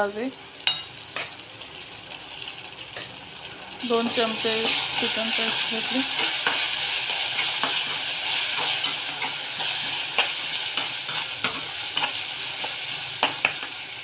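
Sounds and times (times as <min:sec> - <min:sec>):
onion sizzling in hot oil: 0:00.0 - 0:14.0
spatula scraping and tapping pan: 0:06.1 - 0:13.8.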